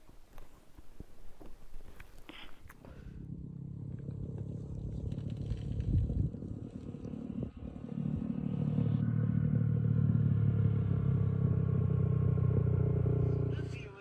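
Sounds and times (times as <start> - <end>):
motorcycle engine running: 2.9 - 14.0.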